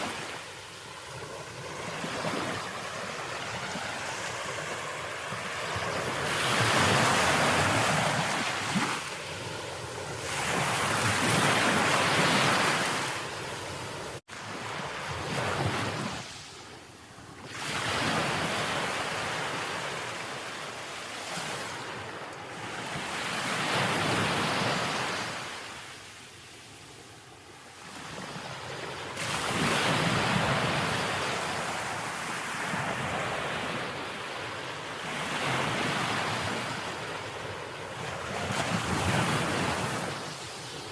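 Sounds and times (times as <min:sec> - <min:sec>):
ocean waves breaking: 0:00.0 - 0:16.5, 0:27.6 - 0:40.9.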